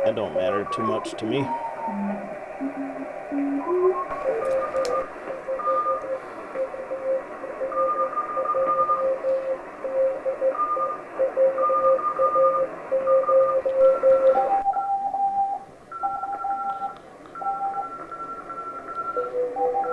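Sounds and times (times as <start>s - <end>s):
radio band hiss: 0.0s - 7.6s
low-pitched morse code tones: 0.0s - 19.9s
higher-pitched morse code tones: 0.5s - 6.2s, 11.5s - 19.9s.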